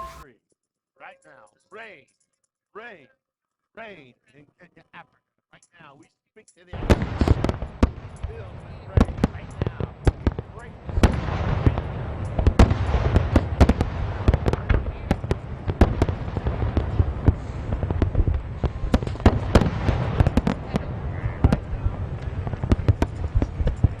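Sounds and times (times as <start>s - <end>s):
heavy rain falling: 6.8s - 24.0s.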